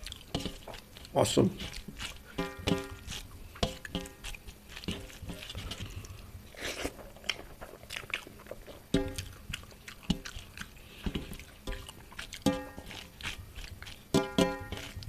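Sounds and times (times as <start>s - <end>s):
chewing and biting food: 0.0s - 15.0s
wet mouth clicks: 6.0s - 14.0s.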